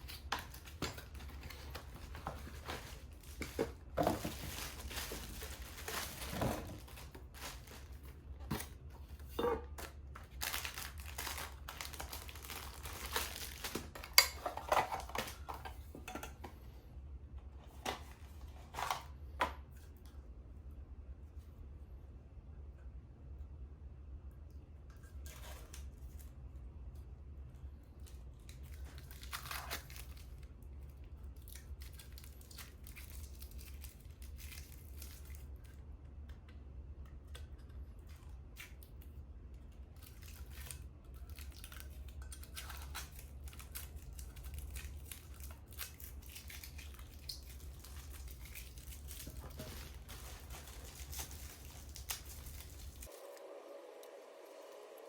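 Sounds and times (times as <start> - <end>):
packaging crinkling and tearing: 0.0 - 8.9, 9.7 - 15.6, 28.0 - 35.7, 39.9 - 53.2.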